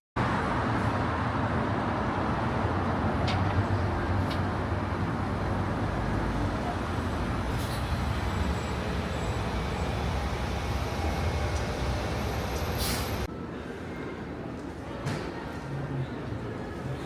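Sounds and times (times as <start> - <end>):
vehicle rumble and road noise: 0.2 - 13.3.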